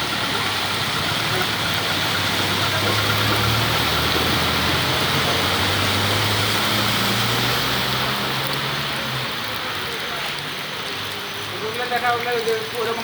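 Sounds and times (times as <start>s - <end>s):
vehicle engine running: 0.0s - 8.6s
heavy rain pouring: 0.0s - 13.0s.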